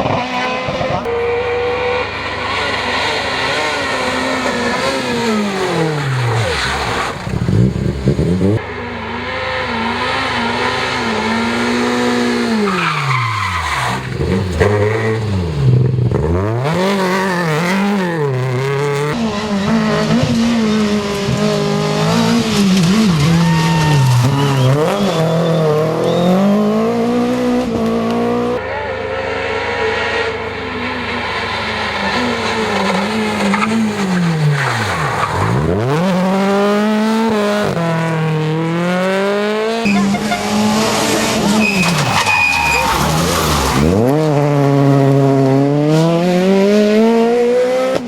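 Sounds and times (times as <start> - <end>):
rally car engines revving: 0.0 - 48.0
tyres squealing: 9.3 - 15.8, 22.2 - 26.6, 39.9 - 45.3.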